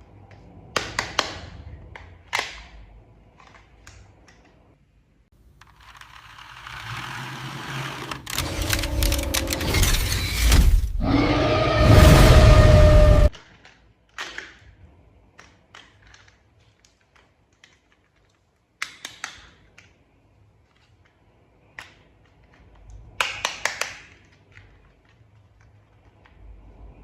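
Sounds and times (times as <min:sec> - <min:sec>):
plastic toy parts clicking: 0:00.8 - 0:04.6, 0:05.5 - 0:07.2, 0:13.3 - 0:20.0, 0:20.6 - 0:26.4.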